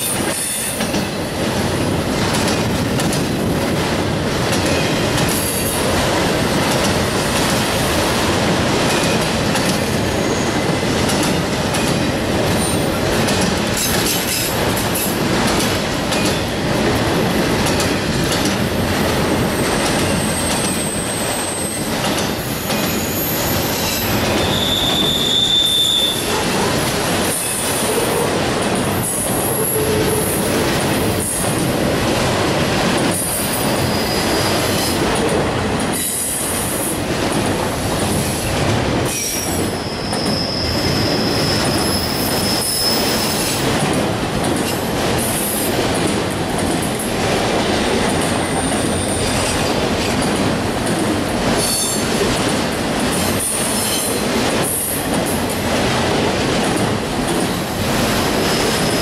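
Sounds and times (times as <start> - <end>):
railroad cars rolling past: 0.0 - 59.0
wheel squeals: 22.6 - 26.3, 39.8 - 43.5.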